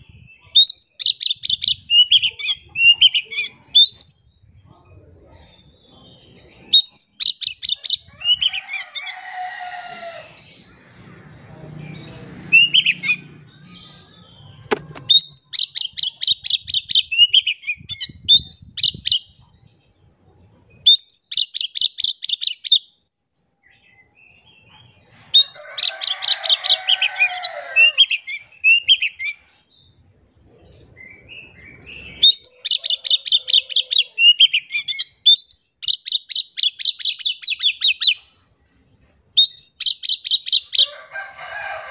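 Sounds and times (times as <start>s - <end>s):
bird singing: 10.0s - 19.9s, 39.0s - 40.9s.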